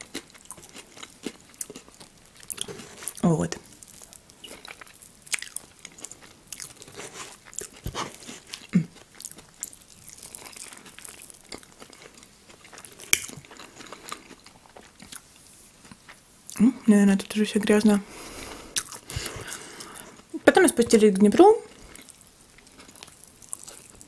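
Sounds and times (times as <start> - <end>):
chewing soft food: 0.0 - 16.6, 18.1 - 20.3, 21.7 - 24.0.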